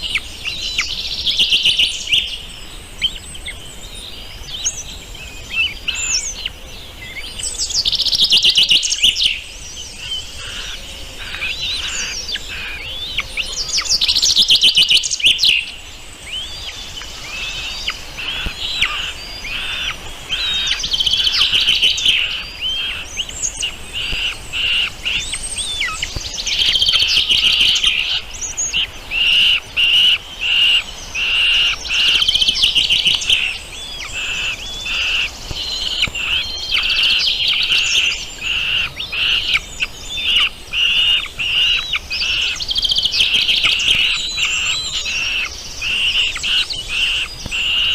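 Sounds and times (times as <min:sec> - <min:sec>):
songbirds singing and chirping: 0:00.0 - 0:47.9.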